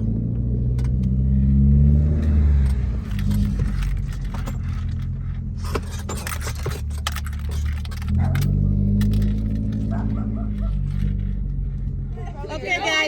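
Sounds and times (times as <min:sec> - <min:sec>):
car exhaust droning: 0:00.0 - 0:13.0
light clicks and rattles: 0:02.2 - 0:12.2.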